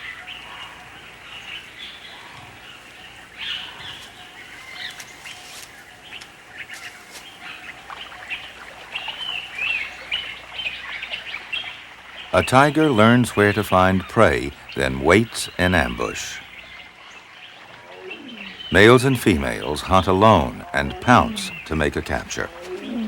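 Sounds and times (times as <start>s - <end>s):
birds chirping: 0.0s - 23.0s
faint steady hiss: 0.0s - 23.0s
bird warbling: 6.8s - 23.0s.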